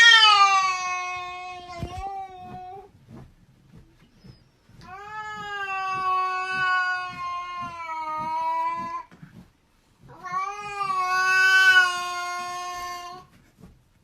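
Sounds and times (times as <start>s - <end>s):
cat yowling: 0.0s - 2.8s, 4.9s - 9.1s, 10.1s - 13.2s.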